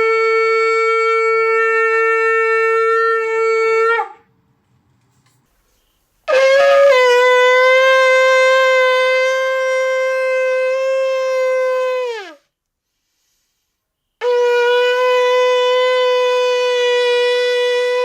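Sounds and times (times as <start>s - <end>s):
shofar blast: 0.0s - 4.2s, 6.3s - 12.4s, 14.2s - 18.0s.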